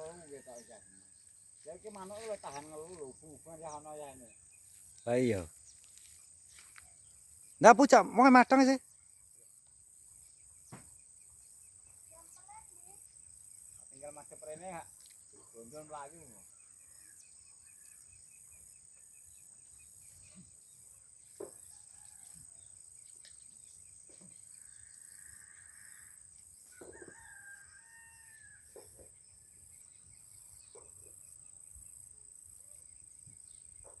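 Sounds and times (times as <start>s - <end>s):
rooster crowing: 26.8s - 28.7s.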